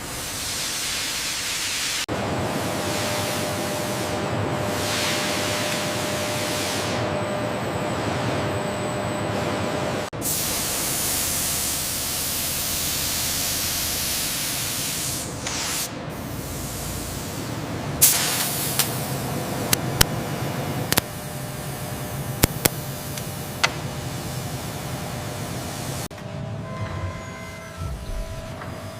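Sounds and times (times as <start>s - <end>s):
loud steady hiss: 10.2s - 26.1s.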